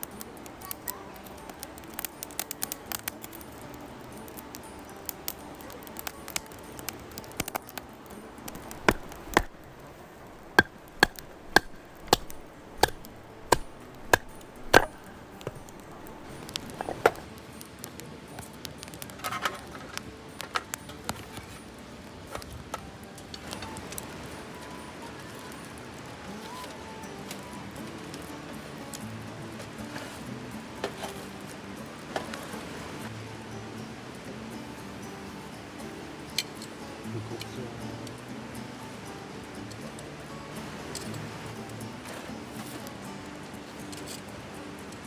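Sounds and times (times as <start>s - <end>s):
light crackling and clicks: 0.0s - 21.6s, 40.9s - 45.0s
sharp chopping knocks: 8.5s - 17.2s.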